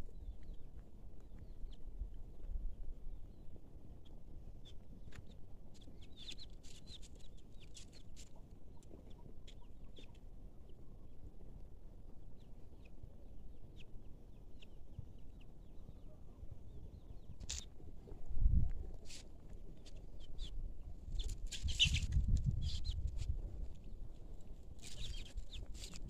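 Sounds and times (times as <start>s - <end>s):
birds chirping: 24.8s - 26.0s.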